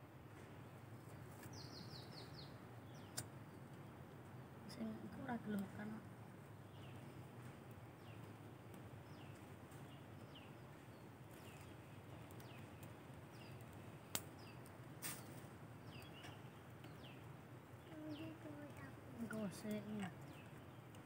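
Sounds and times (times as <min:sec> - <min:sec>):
bird chirping: 0:01.1 - 0:08.3, 0:09.0 - 0:21.0.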